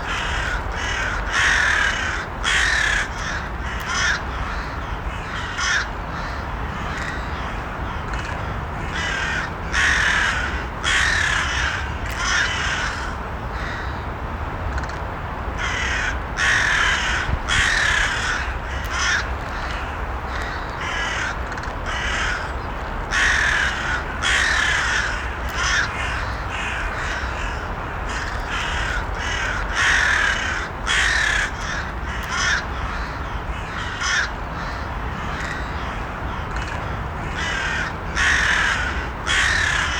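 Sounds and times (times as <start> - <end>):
crows cawing: 0.0 - 14.0, 15.6 - 39.9
low background noise: 0.0 - 39.9.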